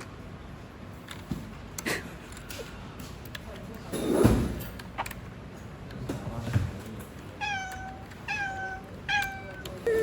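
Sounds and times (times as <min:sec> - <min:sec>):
cat meowing: 0:07.4 - 0:10.0.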